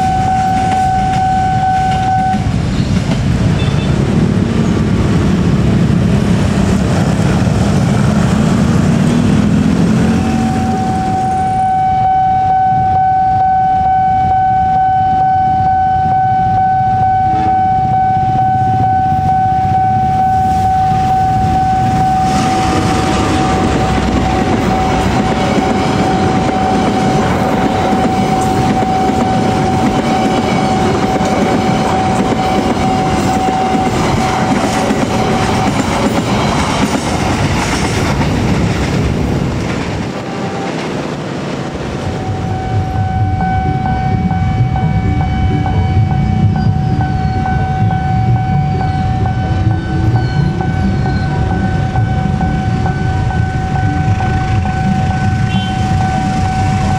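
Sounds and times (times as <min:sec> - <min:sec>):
level crossing warning tone: 0:00.0 - 0:02.9, 0:07.0 - 0:37.4, 0:40.0 - 0:56.9
diesel locomotive engine running: 0:00.0 - 0:56.9
train wheels clacking on rail joints: 0:22.3 - 0:42.8.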